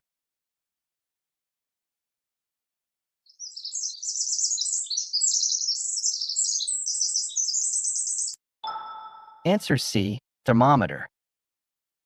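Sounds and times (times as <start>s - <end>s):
songbird chirping and twittering: 3.2s - 9.5s.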